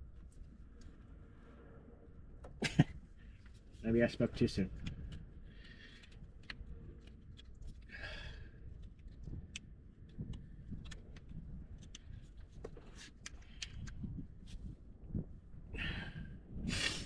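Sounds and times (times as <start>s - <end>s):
heavy breath: 7.9s - 8.6s, 15.8s - 17.0s.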